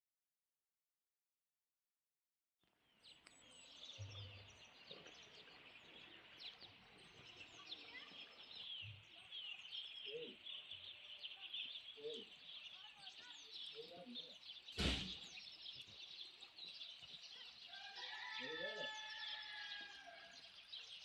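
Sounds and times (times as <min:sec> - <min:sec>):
small birds chirping: 0:02.6 - 0:21.0.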